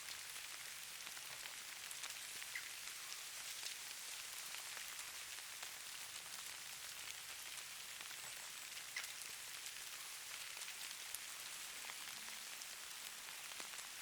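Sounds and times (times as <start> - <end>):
fine rain patter: 0.0 - 14.0.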